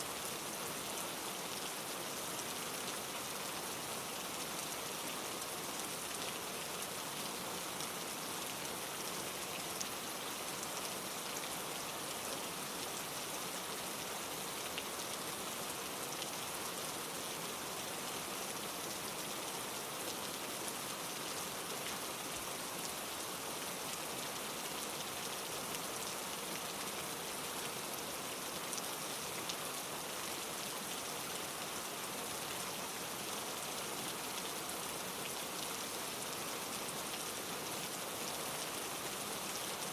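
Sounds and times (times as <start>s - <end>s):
rain on leaves: 0.0s - 39.9s.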